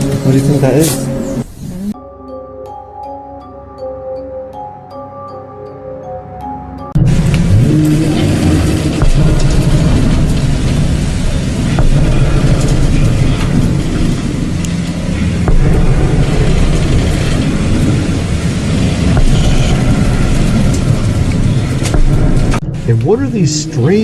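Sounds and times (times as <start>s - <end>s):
rushing noise: 0.0s - 2.0s, 7.0s - 24.0s
low rumbling drone: 0.0s - 24.0s.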